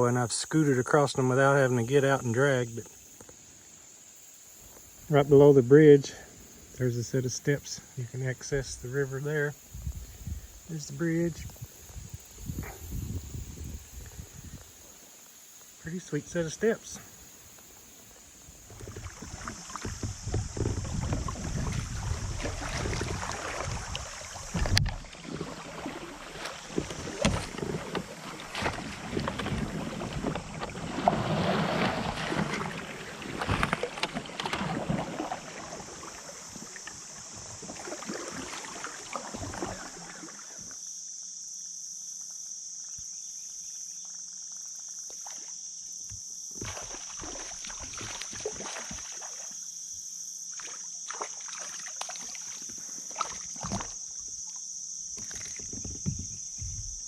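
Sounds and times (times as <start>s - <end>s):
moving water: 0.0s - 40.9s, 44.0s - 57.0s
wind buffeting microphone: 9.6s - 10.6s, 11.4s - 14.7s, 18.6s - 25.1s
paddle strokes splashing: 14.0s - 40.8s, 46.5s - 49.7s, 50.5s - 57.0s
light knocks of boat: 18.7s - 35.4s, 52.0s - 54.0s, 55.1s - 57.0s.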